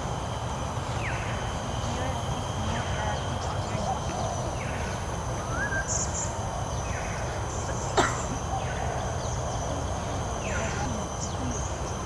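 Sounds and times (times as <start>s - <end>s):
birds chirping: 0.0s - 12.0s
steady low rumble: 0.0s - 12.0s.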